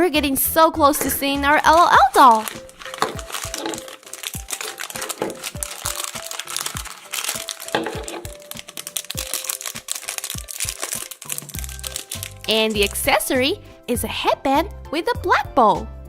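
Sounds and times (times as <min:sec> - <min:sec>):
light background music: 0:00.0 - 0:16.0
plastic wrapping crinkling: 0:01.0 - 0:13.3.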